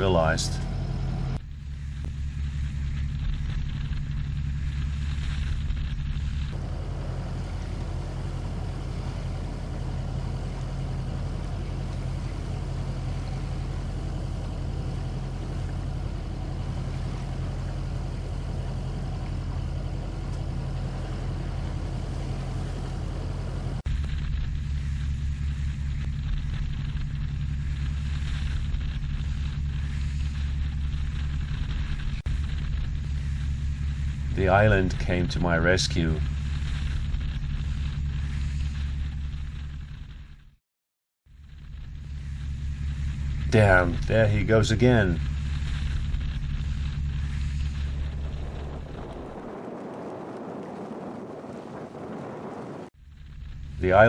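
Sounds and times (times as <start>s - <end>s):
diesel boat engine droning: 0.0s - 40.6s, 41.3s - 54.0s
wind noise: 43.9s - 53.0s.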